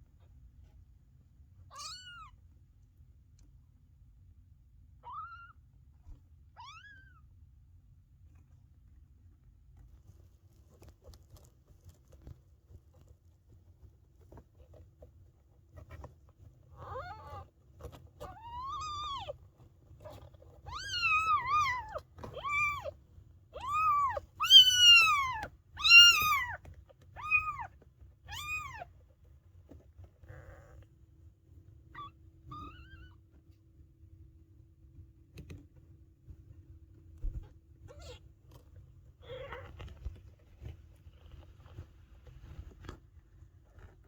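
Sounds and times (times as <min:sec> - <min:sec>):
kittens mewing: 0:23.6 - 0:26.6.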